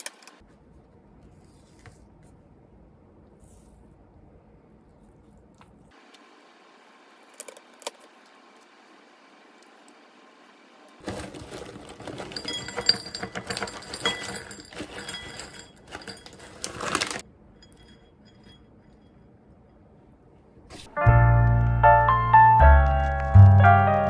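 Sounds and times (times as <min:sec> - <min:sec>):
small metal objects jingling: 0:11.0 - 0:18.7.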